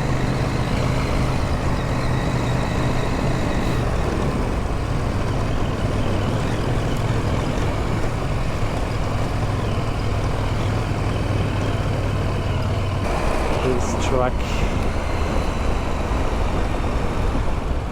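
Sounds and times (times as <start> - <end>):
motorcycle engine running: 0.0 - 17.9
wind noise: 13.2 - 17.9.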